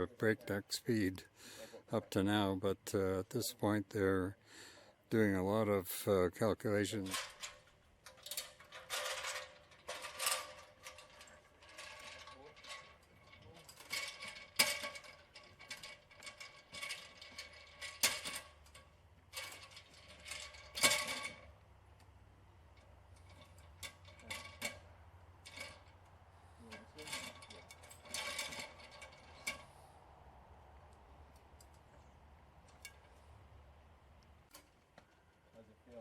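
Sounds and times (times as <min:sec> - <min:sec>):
metal ladder clanking: 0:06.9 - 0:21.6, 0:22.6 - 0:29.7.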